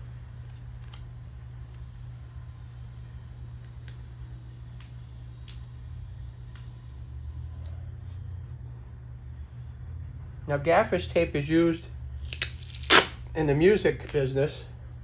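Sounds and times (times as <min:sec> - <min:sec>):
steady low hum: 0:00.0 - 0:15.0
tape crackling and ticking: 0:12.1 - 0:14.3.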